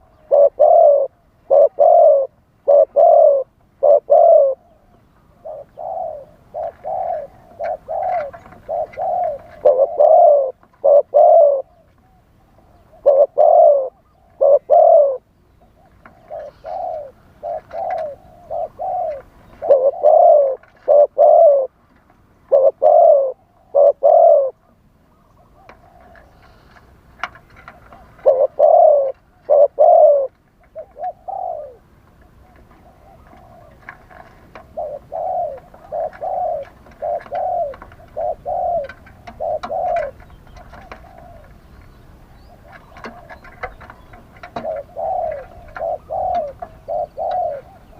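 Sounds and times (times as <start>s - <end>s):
doves cooing: 0.0s - 47.9s.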